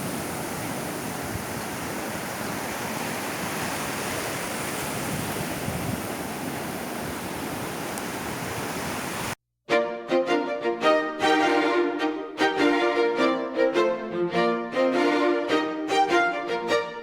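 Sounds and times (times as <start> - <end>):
waves breaking on a beach: 0.0 - 9.4.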